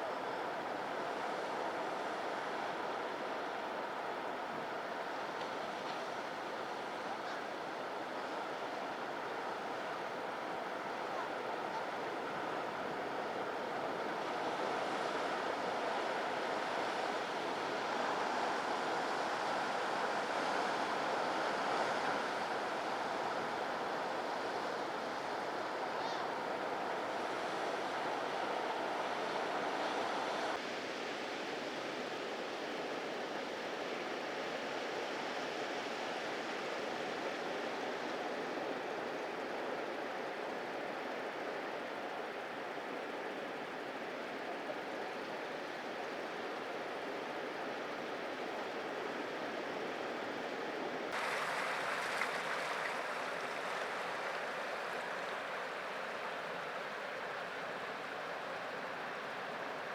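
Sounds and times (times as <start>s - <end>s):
surf washing over rocks: 51.1s - 59.9s.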